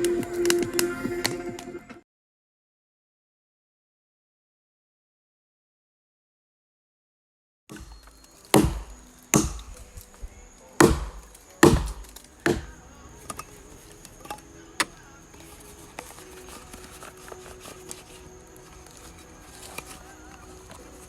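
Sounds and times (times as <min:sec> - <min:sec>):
axe chopping wood: 0:07.7 - 0:10.0, 0:10.8 - 0:13.5.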